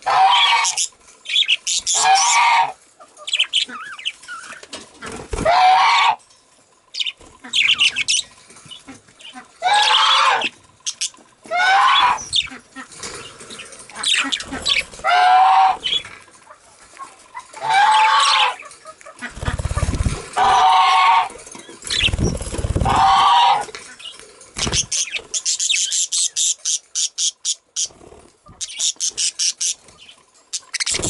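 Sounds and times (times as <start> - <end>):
budgies squawking: 0.0 - 6.2, 7.0 - 13.0, 13.9 - 16.1, 17.4 - 31.0
low fluttering: 19.2 - 20.7, 21.3 - 23.4
high bird chirps: 21.6 - 23.2, 28.6 - 31.0.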